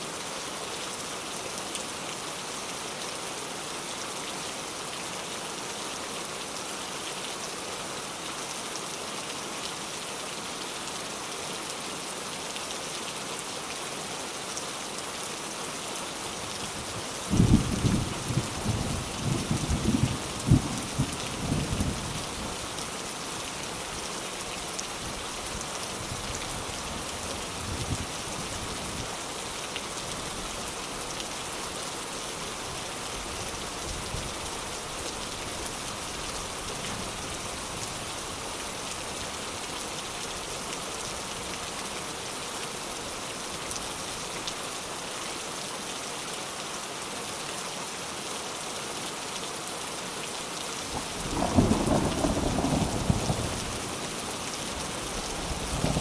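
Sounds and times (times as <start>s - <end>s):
steady rain: 0.0s - 56.0s
low thunder rumble: 51.0s - 53.8s, 55.5s - 56.0s.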